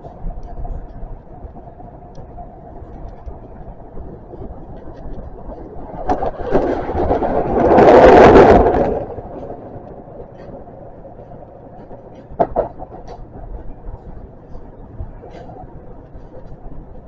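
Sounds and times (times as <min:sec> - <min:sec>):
metro train running noise: 0:06.0 - 0:17.0.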